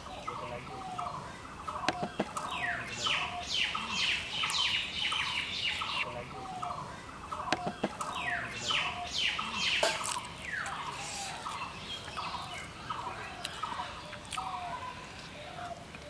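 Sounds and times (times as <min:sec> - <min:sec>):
bird chattering notes: 0:00.2 - 0:11.4.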